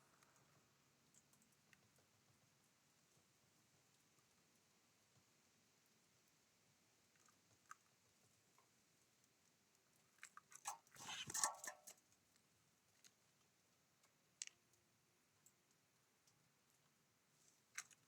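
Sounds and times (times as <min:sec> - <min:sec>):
bird pecking and cracking seeds: 0:08.6 - 0:12.4, 0:17.5 - 0:18.0
rustling: 0:10.7 - 0:12.0.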